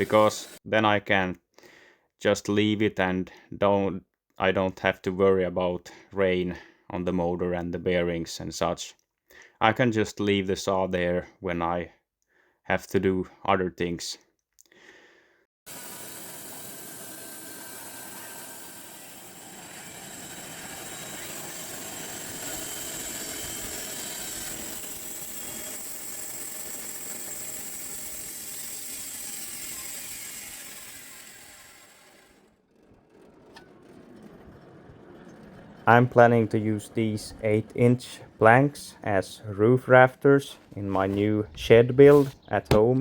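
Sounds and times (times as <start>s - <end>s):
band saw cutting log: 0.0s - 0.6s, 15.7s - 38.8s, 39.6s - 43.0s.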